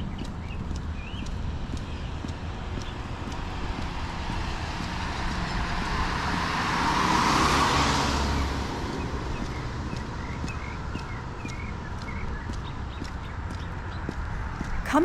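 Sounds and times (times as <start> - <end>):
car passing on wet road: 4.1 - 10.3.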